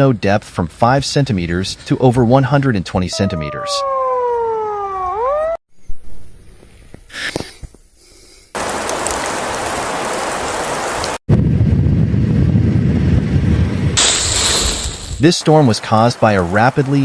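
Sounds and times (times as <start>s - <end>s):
steady hiss: 6.8s - 11.2s, 14.0s - 17.0s
wind rumble on microphone: 8.7s - 15.2s.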